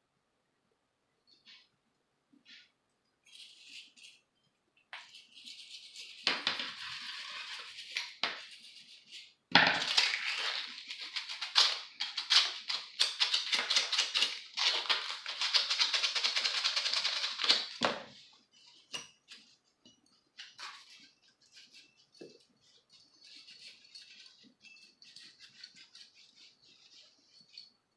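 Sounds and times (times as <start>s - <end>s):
hand brush scrubbing hard surface: 5.0s - 9.4s, 12.2s - 27.9s.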